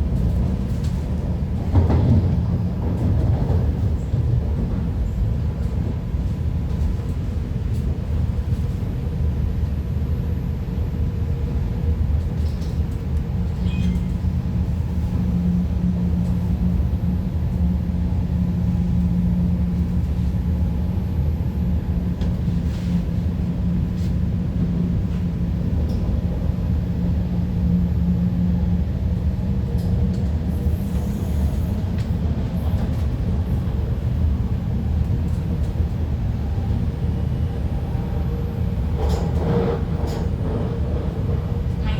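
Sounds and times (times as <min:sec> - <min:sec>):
train wheels rumbling on rail: 0:00.0 - 0:41.9.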